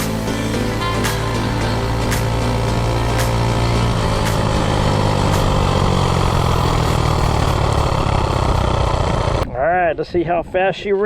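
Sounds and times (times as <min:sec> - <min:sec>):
background music: 0:00.0 - 0:07.6
minibike engine running: 0:00.0 - 0:09.4.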